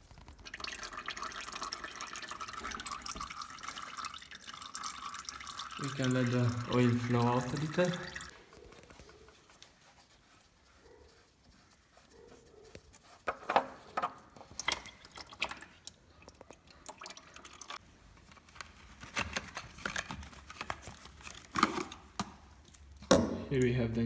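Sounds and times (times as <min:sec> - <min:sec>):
oil dripping into container: 0:00.0 - 0:08.3, 0:14.4 - 0:17.8.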